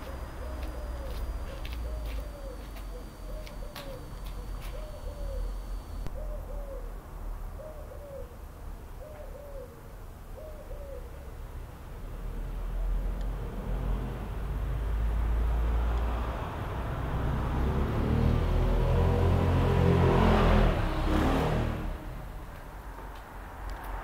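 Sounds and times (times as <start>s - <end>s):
bird two-note hoots: 0.4s - 5.5s.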